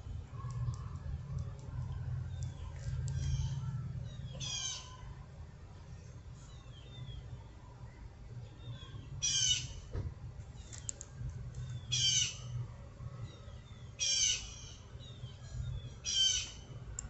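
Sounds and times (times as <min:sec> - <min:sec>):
bird squawking: 0:04.3 - 0:05.0, 0:08.8 - 0:09.8, 0:11.9 - 0:12.5, 0:14.0 - 0:14.9, 0:16.0 - 0:16.6.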